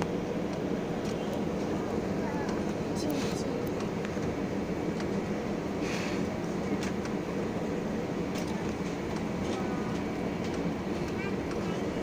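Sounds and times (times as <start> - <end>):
aircraft cabin rumble: 0.0 - 12.0.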